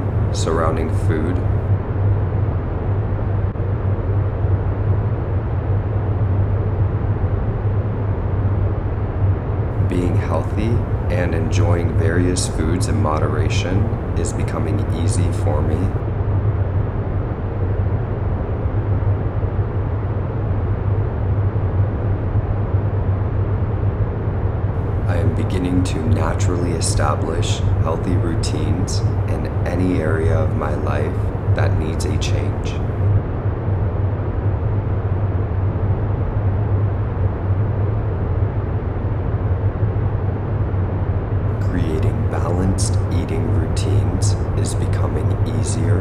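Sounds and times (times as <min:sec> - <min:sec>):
low rumbling bass hum: 0:00.0 - 0:01.7, 0:09.7 - 0:16.0, 0:24.8 - 0:33.1, 0:41.5 - 0:46.0
low ambient drone: 0:00.0 - 0:46.0.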